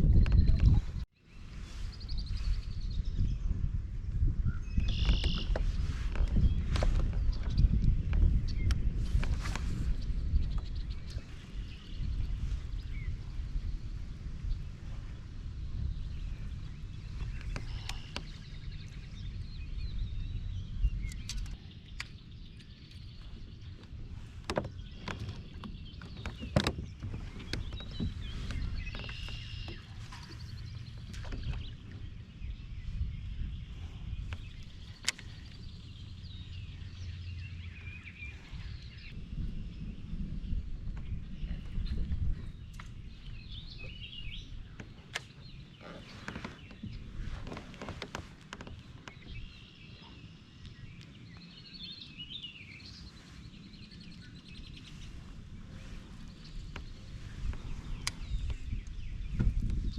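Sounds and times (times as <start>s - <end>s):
birds chirping: 4.4s - 59.9s
low rumble: 6.4s - 44.8s.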